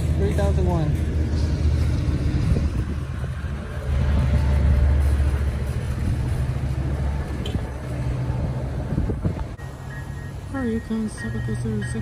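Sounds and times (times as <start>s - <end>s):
train engine rumbling: 0.0s - 12.0s.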